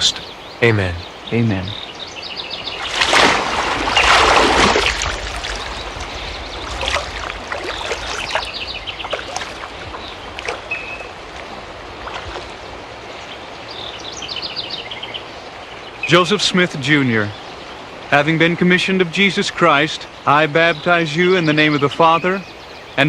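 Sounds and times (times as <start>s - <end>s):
water sloshing and dripping: 2.7s - 13.5s
water splashing: 2.7s - 14.2s.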